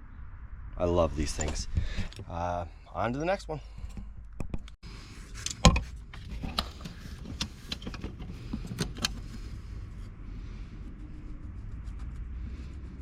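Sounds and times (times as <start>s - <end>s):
steady low rumble: 0.0s - 13.0s
tools and gear clicking and clunking: 3.7s - 9.6s.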